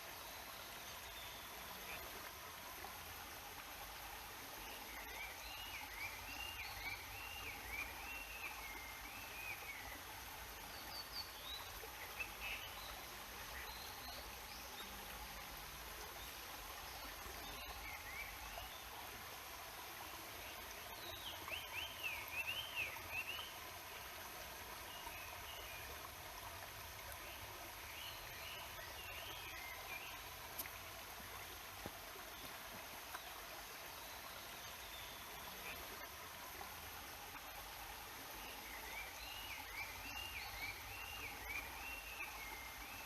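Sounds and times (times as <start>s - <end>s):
babbling stream: 0.0s - 43.0s
songbird singing: 38.4s - 43.0s.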